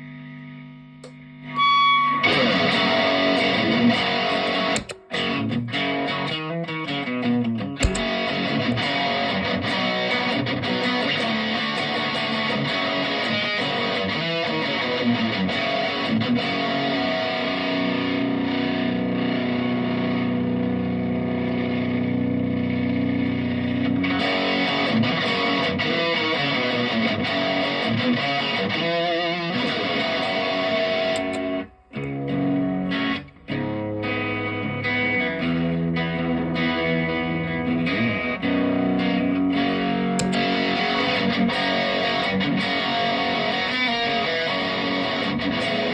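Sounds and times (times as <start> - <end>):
overdriven electric guitar riffs: 0.0 - 45.9.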